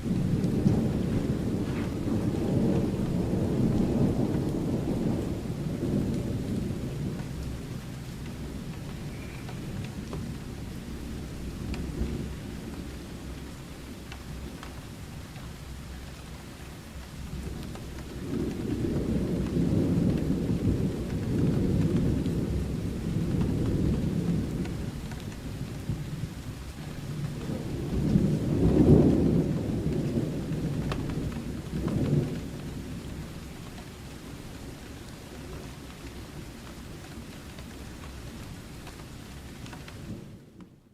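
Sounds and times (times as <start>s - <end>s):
thunder rumbling: 0.0s - 16.4s, 17.0s - 38.4s
steady rain: 0.0s - 40.9s.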